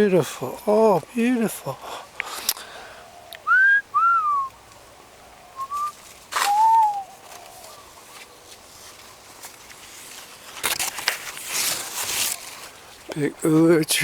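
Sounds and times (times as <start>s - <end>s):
whistled notes gliding in pitch: 3.5s - 4.5s, 5.6s - 7.2s
brief rustle: 5.6s - 13.1s.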